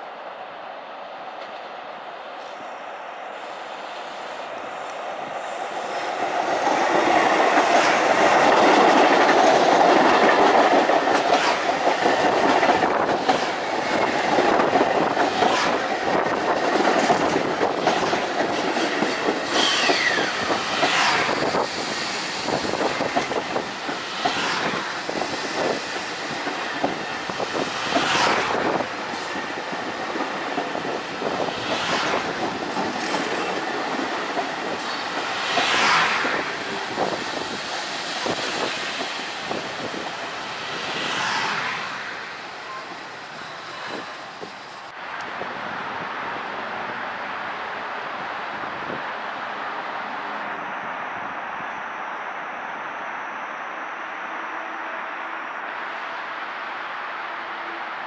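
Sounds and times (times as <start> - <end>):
train passing at speed: 0.0 - 58.0
train wheels clicking on rails: 4.8 - 45.4.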